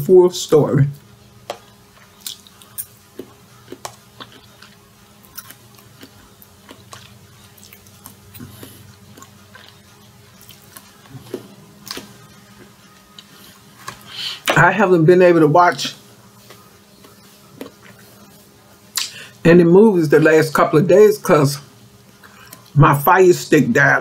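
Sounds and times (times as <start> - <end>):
person chewing food: 1.0 - 14.5, 15.7 - 19.4, 22.0 - 22.8
wet mouth clicks: 1.5 - 3.0, 18.9 - 19.2.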